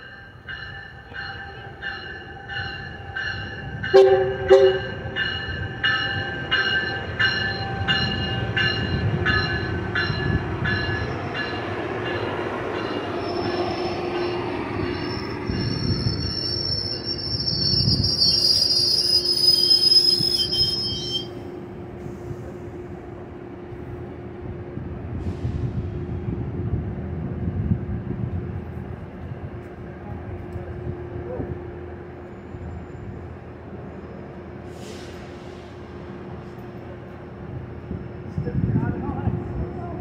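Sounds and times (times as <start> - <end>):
train rumbling through station: 0.0 - 40.0
train wheels squealing: 12.2 - 21.4, 32.2 - 35.9.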